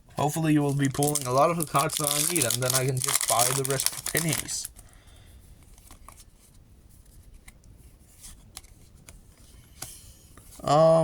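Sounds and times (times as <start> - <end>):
cards rubbing together: 0.6 - 4.6.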